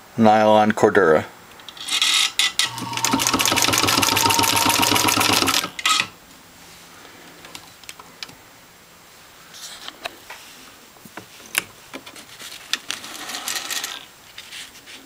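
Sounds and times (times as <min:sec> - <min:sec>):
sewing machine stitching: 0:02.5 - 0:06.1
motor hum: 0:02.7 - 0:05.8.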